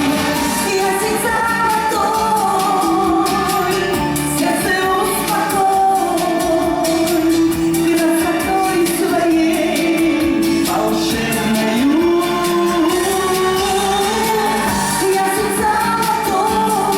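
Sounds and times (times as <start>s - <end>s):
instrumental accompaniment: 0.0s - 16.9s
person singing: 0.0s - 16.9s.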